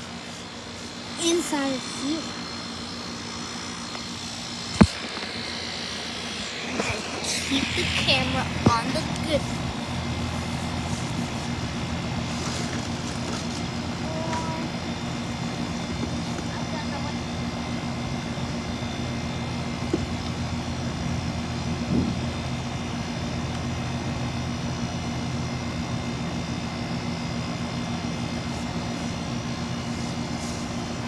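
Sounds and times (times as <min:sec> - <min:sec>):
air conditioner unit humming: 0:00.0 - 0:31.0.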